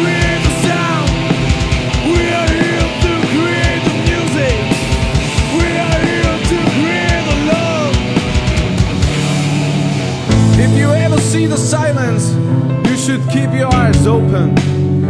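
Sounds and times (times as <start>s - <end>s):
fast drum kit: 0.0s - 12.3s, 12.9s - 14.9s
distorted electric guitars: 0.0s - 15.0s.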